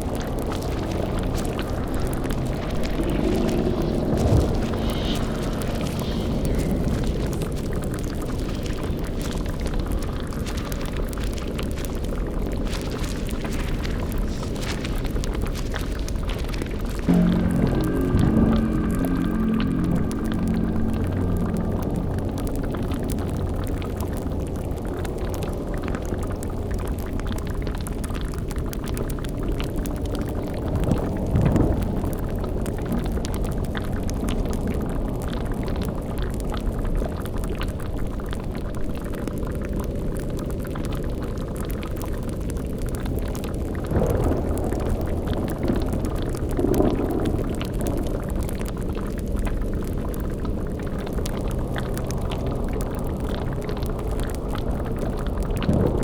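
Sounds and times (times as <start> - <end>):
low surges: 0.0 - 8.5, 17.1 - 24.6
low drone: 0.0 - 9.7, 17.1 - 25.7
bubbling liquid: 0.0 - 56.0.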